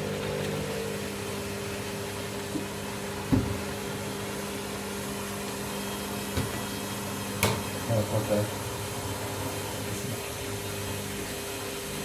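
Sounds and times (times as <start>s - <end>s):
washing machine motor hum: 0.0s - 12.0s
dull knock: 3.3s - 3.6s.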